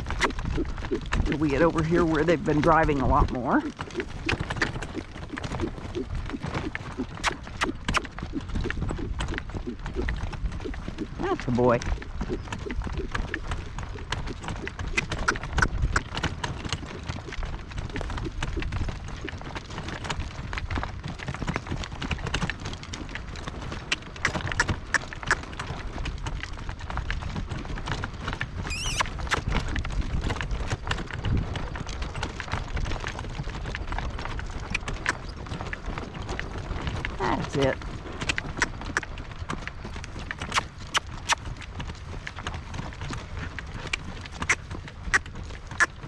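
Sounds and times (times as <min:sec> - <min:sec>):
horse hoofbeats on soft ground: 0:00.0 - 0:46.0
short high chirp: 0:28.7 - 0:29.1.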